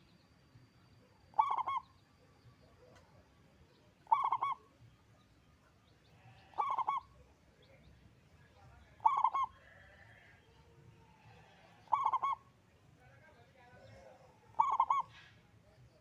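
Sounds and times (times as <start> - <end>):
dove cooing: 1.3 - 1.9, 4.0 - 4.7, 6.5 - 7.2, 9.0 - 9.8, 11.8 - 12.5, 14.5 - 15.3.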